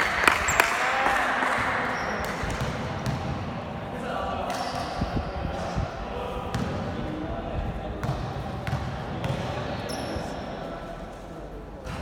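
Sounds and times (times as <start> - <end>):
players' voices: 0.0 - 12.0
basketball bouncing on hard court: 0.2 - 3.4, 6.5 - 6.8, 8.0 - 9.5.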